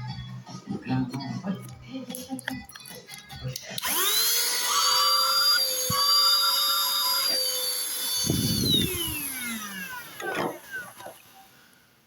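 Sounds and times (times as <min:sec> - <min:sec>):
handheld vacuum cleaner motor whine: 0:03.8 - 0:11.8.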